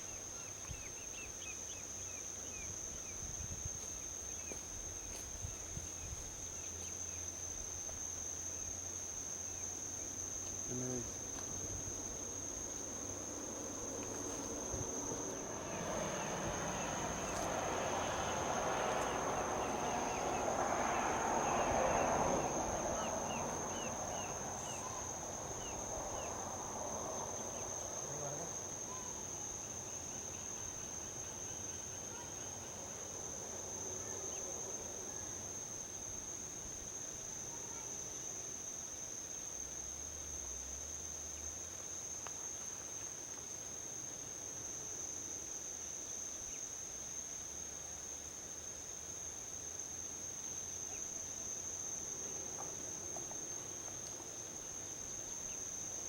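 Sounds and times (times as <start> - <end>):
insects droning: 0.0 - 56.0
vehicle passing on highway: 11.4 - 31.0.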